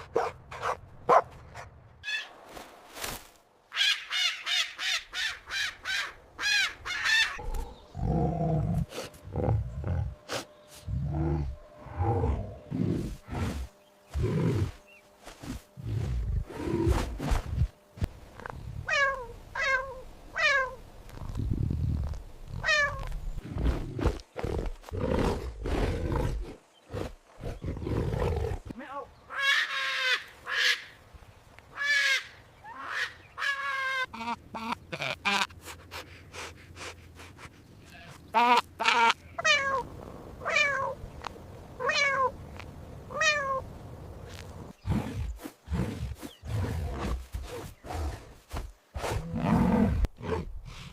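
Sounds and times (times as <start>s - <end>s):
low rumbling growl: 10.9s - 14.8s
cat meowing: 40.4s - 41.0s, 41.8s - 42.3s.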